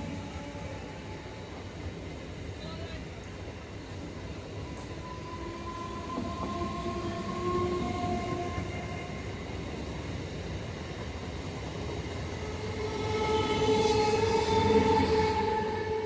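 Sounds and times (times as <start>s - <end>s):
train whining tones: 0.0s - 2.0s, 4.2s - 10.1s, 11.5s - 16.0s
train rumbling: 0.0s - 16.0s.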